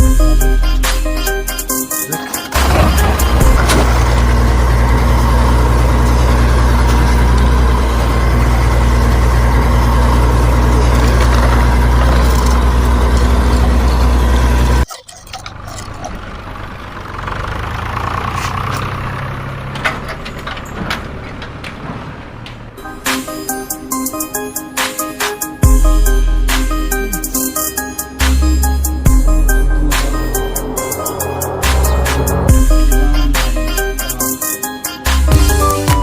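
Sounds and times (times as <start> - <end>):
tractor engine running: 0.0 - 36.0
quieter uneven engine sound: 15.5 - 22.8, 28.4 - 34.3.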